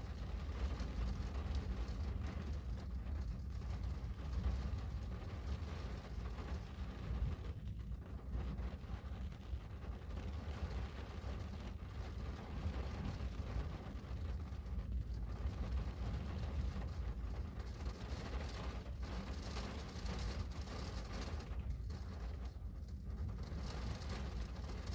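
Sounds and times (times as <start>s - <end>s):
rain falling on a window: 0.0s - 24.9s.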